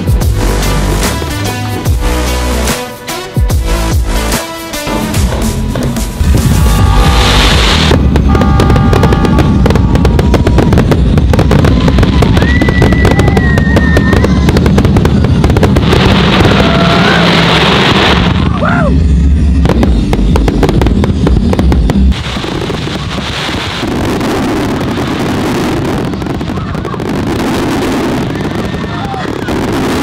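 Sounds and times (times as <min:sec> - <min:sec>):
music: 0:00.0 - 0:08.2
fireworks bangs and crackling: 0:00.0 - 0:30.0
low rumble: 0:05.1 - 0:30.0
fireworks whistling: 0:06.1 - 0:30.0.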